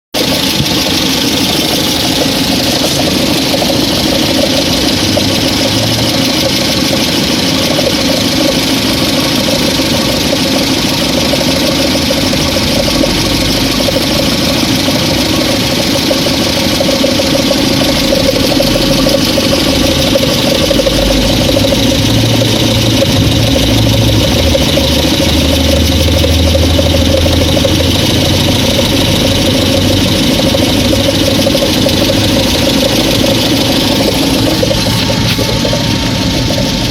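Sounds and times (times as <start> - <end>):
car engine knocking: 0.1 - 36.9
deep low rumble: 20.1 - 30.9.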